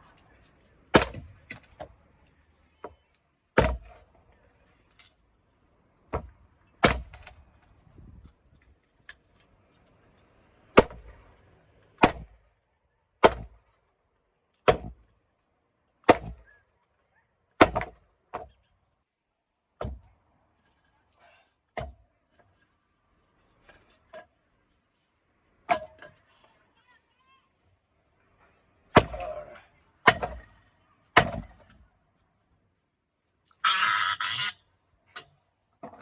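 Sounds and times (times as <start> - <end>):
blade chopping wood: 0.9 - 1.7, 3.6 - 4.0, 6.1 - 7.3, 12.0 - 12.3, 13.2 - 13.6, 14.6 - 15.0, 16.0 - 16.4, 17.6 - 18.5, 28.9 - 29.3, 30.0 - 30.4, 31.2 - 31.5.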